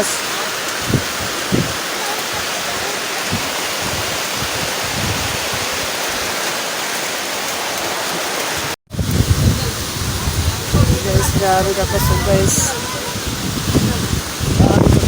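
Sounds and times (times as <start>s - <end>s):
heavy rain pouring: 0.0s - 15.0s
wind hitting microphone: 0.8s - 6.4s, 8.9s - 15.0s.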